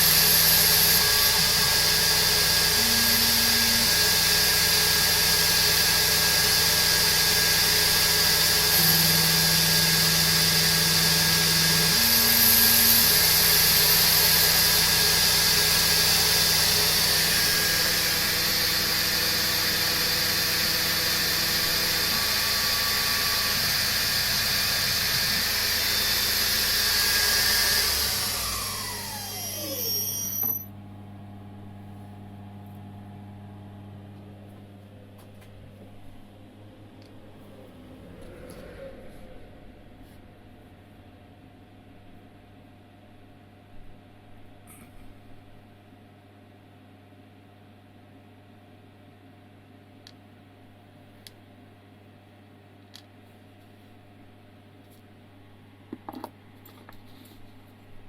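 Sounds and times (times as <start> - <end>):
milling machine running: 0.0 - 30.7
spindle winding down whine: 0.0 - 30.7
faint hum: 28.4 - 58.0.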